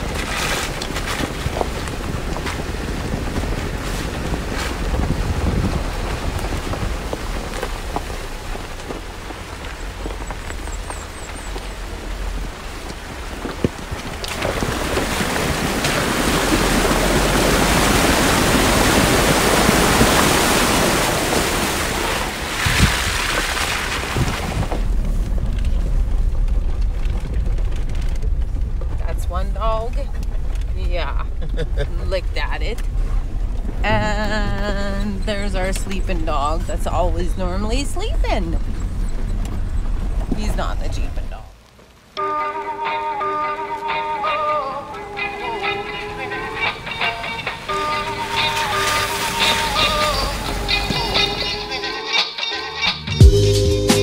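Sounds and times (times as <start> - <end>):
wind noise on microphone: 0.0 - 41.5
muffled vehicle rumble inside cab: 0.0 - 42.1
vehicle driving on gravel: 0.0 - 51.8
water spraying from vehicle: 0.0 - 51.9.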